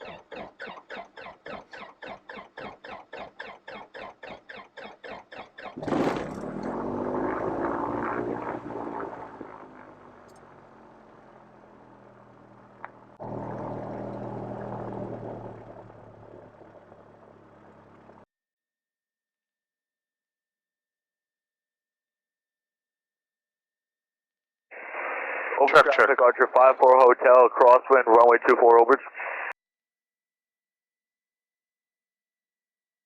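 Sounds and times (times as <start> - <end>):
aircraft engine running: 0.0 - 18.3, 25.6 - 28.3.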